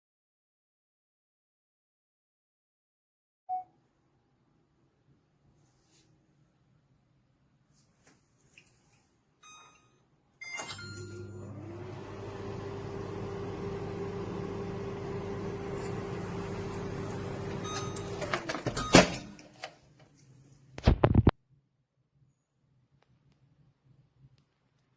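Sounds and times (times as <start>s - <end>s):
microwave oven beeping: 9.4s - 19.7s
microwave oven humming: 10.6s - 19.8s.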